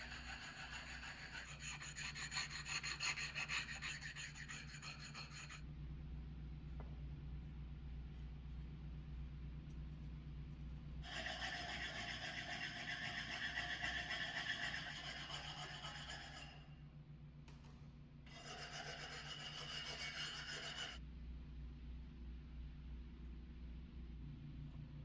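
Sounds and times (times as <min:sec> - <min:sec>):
tool rasping on hard surface: 0:00.0 - 0:05.6, 0:11.0 - 0:16.7, 0:18.3 - 0:21.0
steady low hum: 0:00.0 - 0:25.0.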